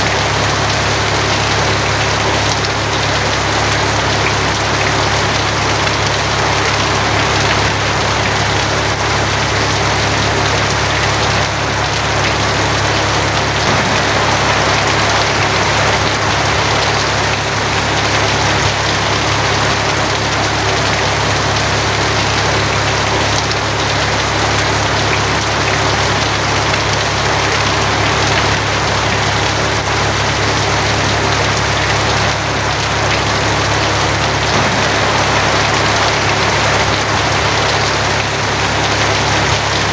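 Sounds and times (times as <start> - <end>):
heavy rain on a tin roof: 0.0 - 39.9
low hum: 13.6 - 18.2, 34.5 - 38.8.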